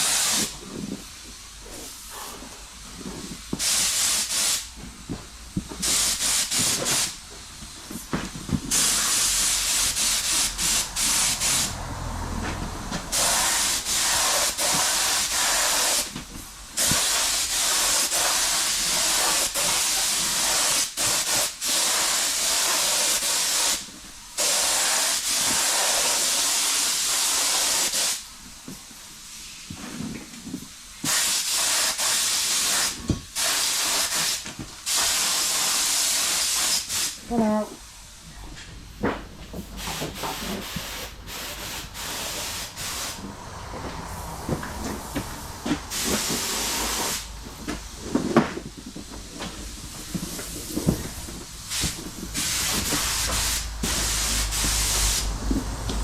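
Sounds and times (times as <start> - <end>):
paint spray gun hissing: 0.0 - 0.5, 3.6 - 4.7, 5.8 - 7.2, 8.7 - 11.7, 13.1 - 16.1, 16.8 - 28.2, 31.0 - 37.2, 45.9 - 47.3, 51.6 - 55.3.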